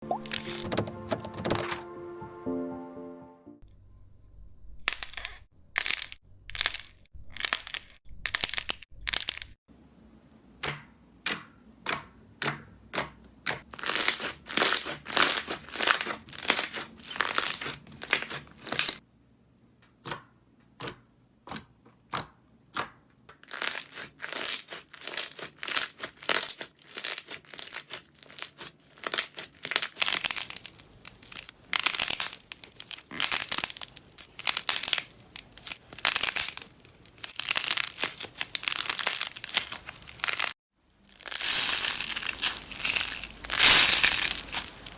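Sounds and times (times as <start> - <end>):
slime squishing by hand: 12.9 - 19.0, 20.8 - 44.9.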